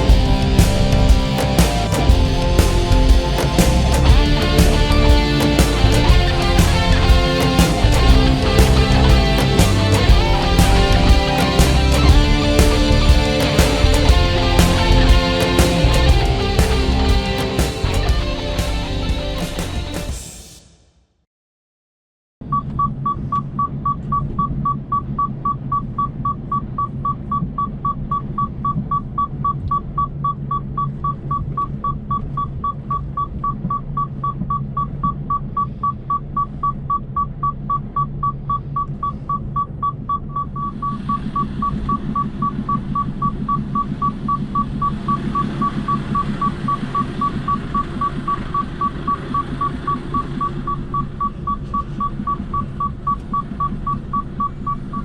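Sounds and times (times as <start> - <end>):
lorry engine hum: 0.0 - 20.2, 27.2 - 55.0
hazard indicator beeping: 22.5 - 55.0.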